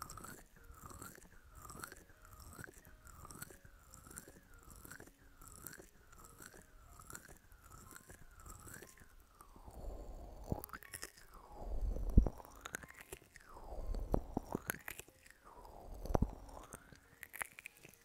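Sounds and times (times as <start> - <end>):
scratching and brushing on microphone: 11.7 - 12.4.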